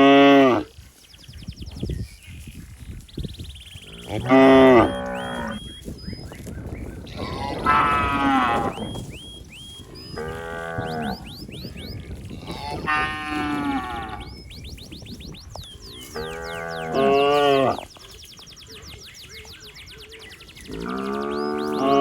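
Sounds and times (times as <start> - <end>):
cow mooing: 3.9 - 5.7, 7.1 - 9.0, 10.2 - 11.2, 12.4 - 14.3, 16.2 - 17.8.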